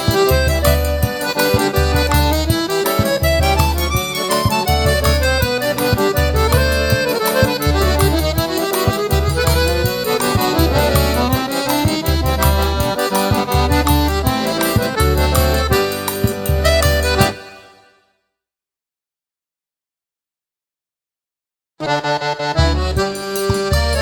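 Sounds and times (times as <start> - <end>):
light percussion ticking: 0.0 - 17.3
low repeating beat: 0.0 - 17.4
accordion melody: 0.0 - 18.1, 21.8 - 24.0.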